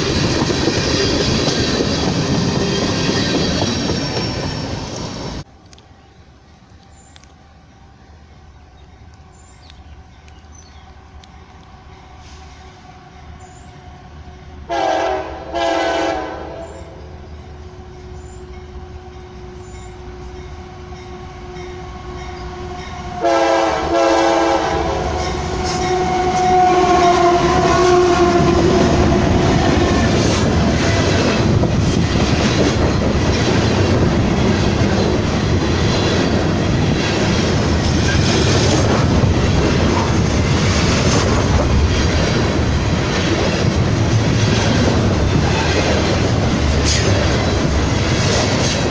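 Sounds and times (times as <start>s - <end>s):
train wheels rumbling on rail: 0.0s - 48.9s
train horn blasts: 10.7s - 17.1s, 17.7s - 31.4s.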